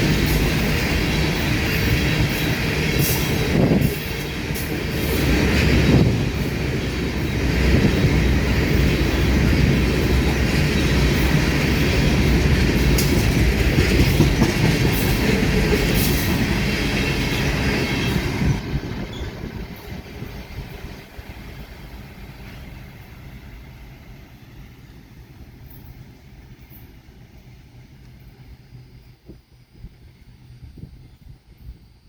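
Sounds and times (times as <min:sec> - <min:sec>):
clickety-clack over rail joints: 0:00.0 - 0:24.1
freight train wheels rumbling: 0:00.0 - 0:32.0
wheel squeal: 0:19.0 - 0:19.5.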